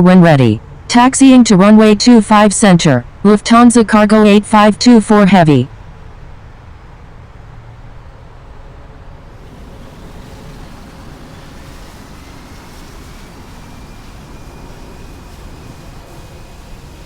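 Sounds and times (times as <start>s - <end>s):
faint rising whine: 5.7s - 17.0s
jet engines rumbling: 5.8s - 17.0s.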